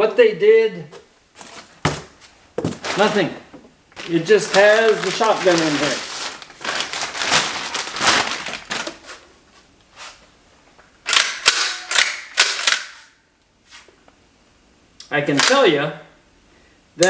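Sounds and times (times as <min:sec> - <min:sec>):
shotgun handling rustle: 0:01.4 - 0:03.3, 0:04.0 - 0:09.3
shotgun bolt clacking: 0:11.1 - 0:13.0.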